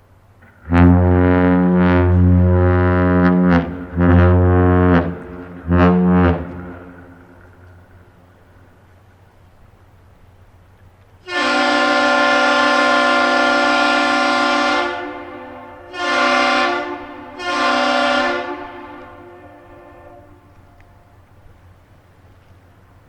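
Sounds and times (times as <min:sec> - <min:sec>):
air horn blasts echoing: 0:00.5 - 0:08.0, 0:11.2 - 0:21.2.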